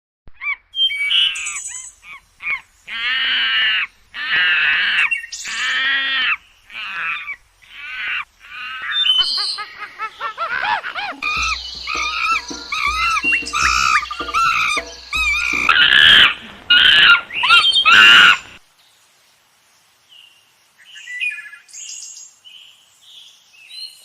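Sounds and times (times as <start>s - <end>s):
harsh bird calls: 0.4s - 18.6s.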